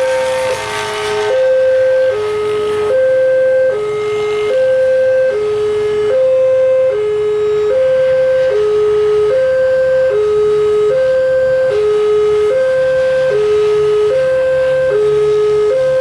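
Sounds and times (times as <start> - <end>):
rush of noise: 0.0 - 2.9.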